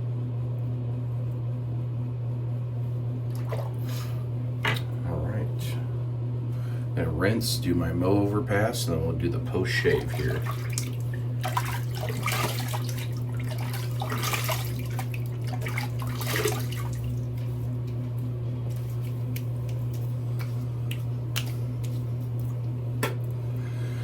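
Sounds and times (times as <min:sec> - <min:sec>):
steady low hum: 0:00.0 - 0:24.0
water splashing at a sink: 0:03.3 - 0:04.0, 0:09.6 - 0:23.4.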